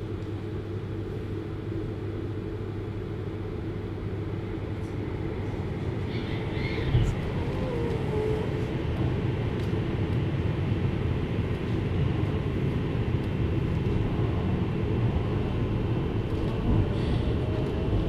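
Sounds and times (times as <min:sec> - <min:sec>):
train wheels rumbling on rails: 0:04.0 - 0:18.0.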